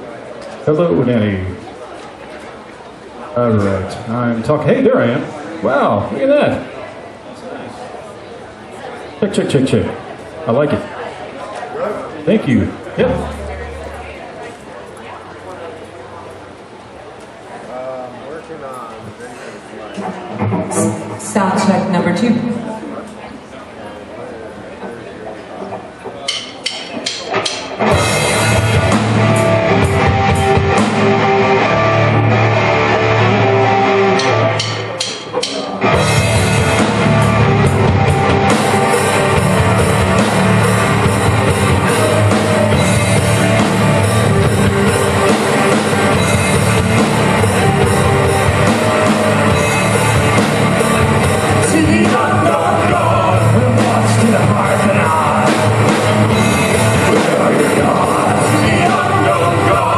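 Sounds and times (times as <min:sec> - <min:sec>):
live rock band playing: 0:12.5 - 0:14.6, 0:26.9 - 0:59.9
person singing: 0:51.4 - 0:59.9.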